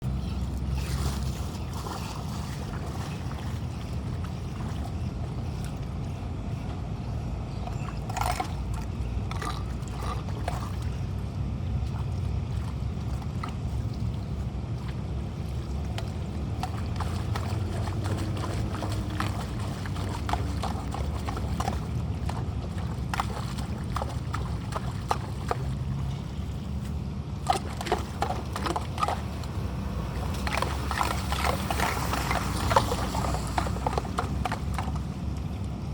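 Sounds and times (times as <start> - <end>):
flowing storm water and rain: 28.4 - 35.9.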